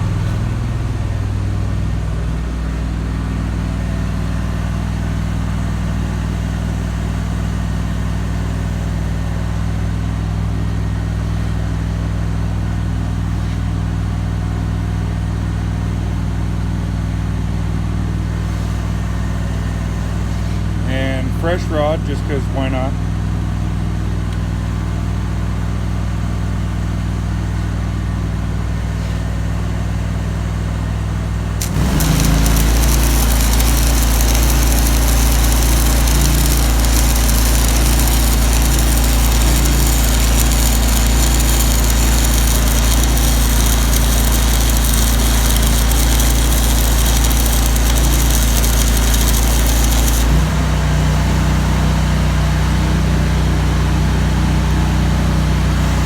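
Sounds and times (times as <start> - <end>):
welder generator engine running: 30.6 - 56.0
welding arc crackling hiss: 31.6 - 50.7.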